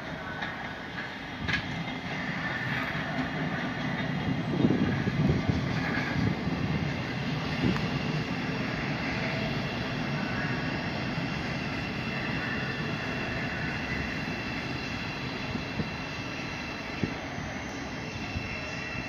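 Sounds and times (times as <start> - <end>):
electric train rumble and hum: 0.0 - 19.0
faint high whine: 4.7 - 19.0.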